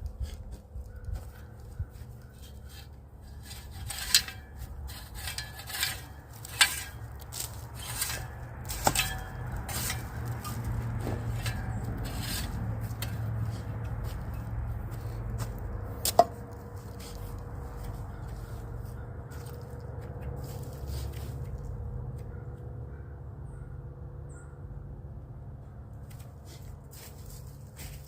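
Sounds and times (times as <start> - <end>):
hand tools scraping: 0.0 - 21.6.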